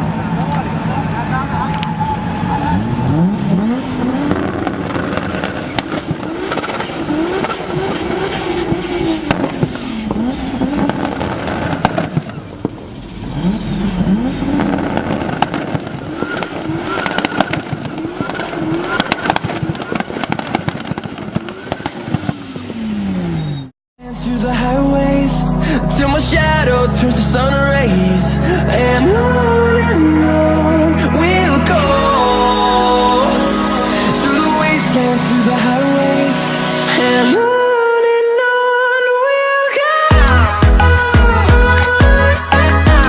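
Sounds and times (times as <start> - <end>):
car engine revving: 0.0 - 38.0
sharp exhaust pops and bangs: 1.7 - 23.1.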